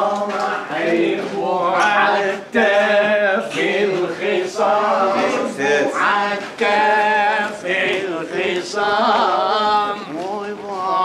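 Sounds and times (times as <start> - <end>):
man singing: 0.0 - 11.0.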